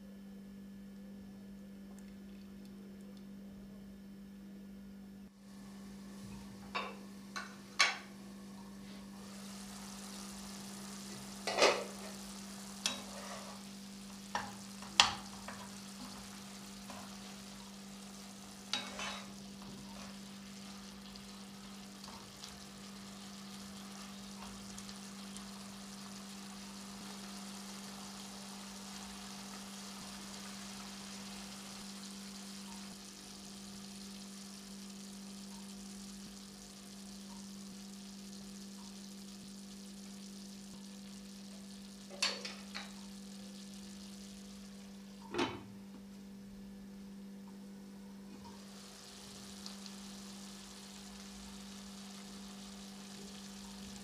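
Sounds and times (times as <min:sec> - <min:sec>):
food sizzling in a pan: 0:05.4 - 0:45.4, 0:48.4 - 0:54.0
wooden spatula knocking a pan: 0:14.3 - 0:15.7.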